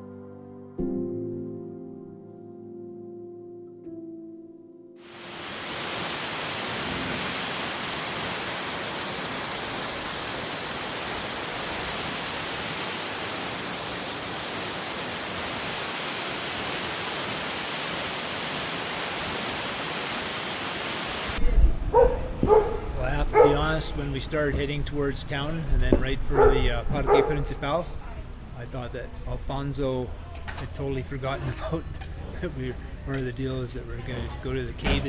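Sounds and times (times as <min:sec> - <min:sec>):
piano music: 0:00.0 - 0:06.1, 0:06.7 - 0:08.0, 0:21.4 - 0:35.0
waterfall roaring: 0:05.0 - 0:28.9.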